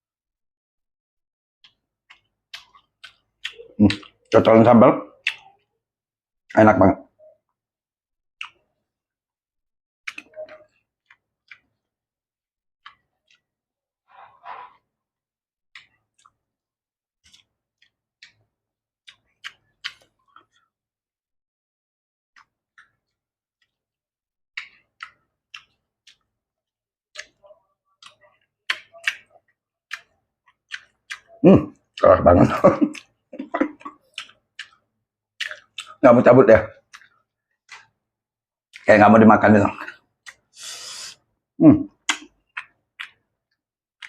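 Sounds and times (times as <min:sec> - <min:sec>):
person chewing food: 0:01.6 - 0:04.5, 0:05.1 - 0:05.8, 0:08.4 - 0:09.1, 0:10.0 - 0:12.1, 0:12.8 - 0:15.0, 0:15.7 - 0:20.8, 0:22.4 - 0:23.9, 0:24.6 - 0:36.0, 0:36.7 - 0:38.9, 0:39.8 - 0:41.3, 0:41.9 - 0:44.0
wet mouth clicks: 0:01.6 - 0:04.5, 0:05.2 - 0:05.6, 0:08.4 - 0:08.7, 0:10.1 - 0:11.8, 0:17.2 - 0:18.5, 0:19.1 - 0:20.7, 0:24.6 - 0:26.3, 0:27.1 - 0:31.8, 0:32.7 - 0:36.0, 0:36.8 - 0:38.0, 0:39.8 - 0:43.6.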